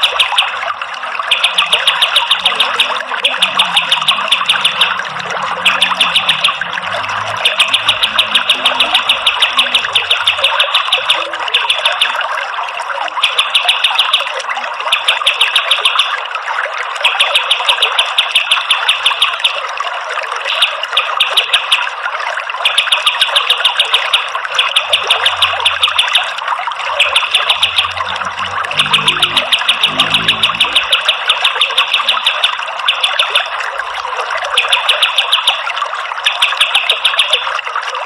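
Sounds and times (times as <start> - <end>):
songbird rapid high notes: 1.3 - 12.2, 23.4 - 33.4.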